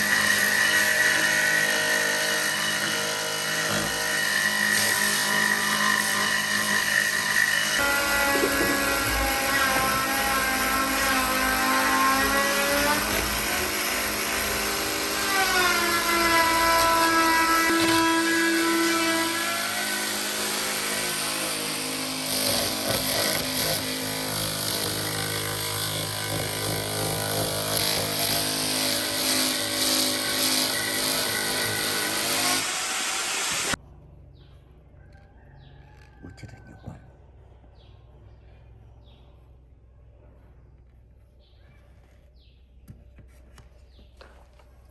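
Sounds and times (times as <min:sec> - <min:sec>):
electric power tool motor running: 0:00.0 - 0:33.8.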